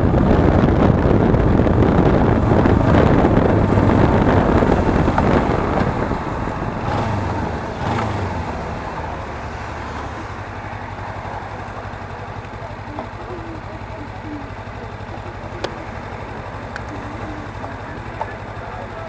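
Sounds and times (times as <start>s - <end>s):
wind rush: 0.0s - 12.1s
motorcycle engine running: 0.0s - 19.0s.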